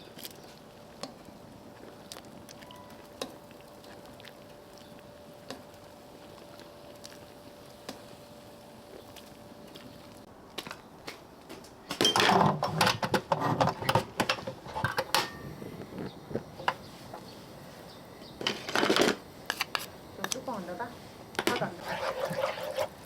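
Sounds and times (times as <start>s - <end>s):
dishes and utensils clattering: 12.0s - 15.4s.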